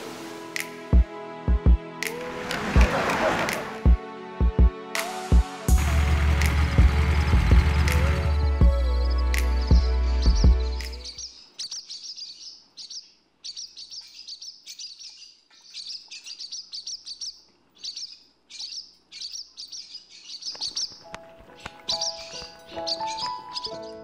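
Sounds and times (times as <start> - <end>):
soft music: 0.0 - 11.2, 20.8 - 24.0
bass-heavy music: 0.5 - 11.2
small bird chirping: 8.4 - 24.0.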